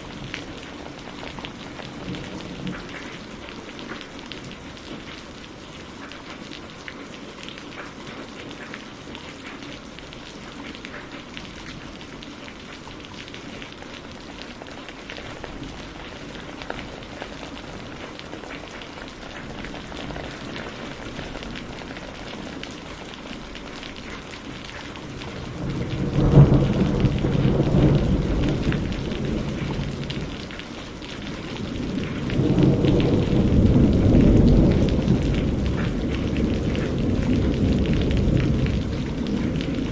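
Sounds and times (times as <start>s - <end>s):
steady rain falling: 0.0s - 39.9s
thunder rumbling: 13.1s - 39.9s.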